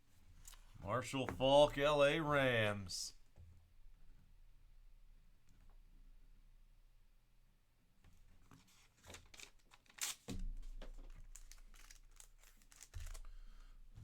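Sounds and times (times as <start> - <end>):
card packaging crinkling: 9.0 - 13.4.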